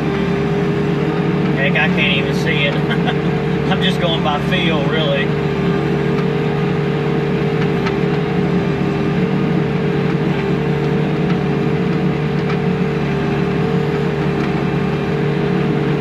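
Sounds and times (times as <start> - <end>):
high hum: 0.0 - 14.0
diesel engine under load: 0.0 - 16.0.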